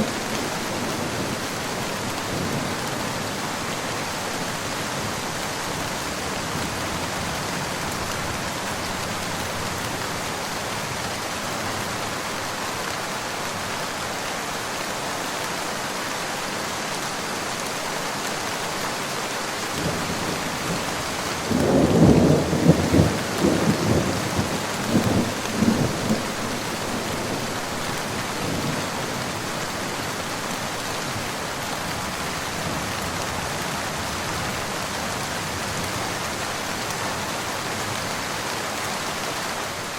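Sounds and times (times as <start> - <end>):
steady rain falling: 0.0 - 39.9
thunder rumbling: 19.8 - 30.0.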